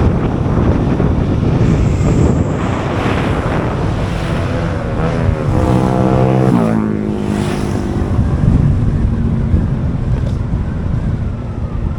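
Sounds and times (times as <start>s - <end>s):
wind and road noise: 0.0s - 11.9s
motorbike engine running: 1.4s - 9.4s.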